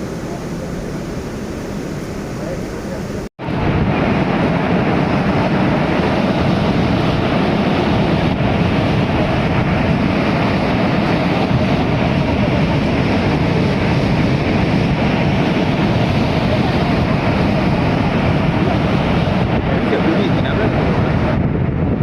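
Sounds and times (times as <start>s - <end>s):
waterfall roaring: 0.0s - 21.4s.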